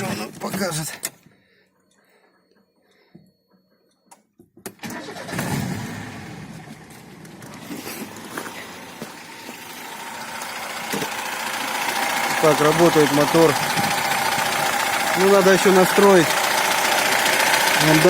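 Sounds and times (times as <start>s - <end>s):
car engine cranking and starting: 4.7s - 18.0s.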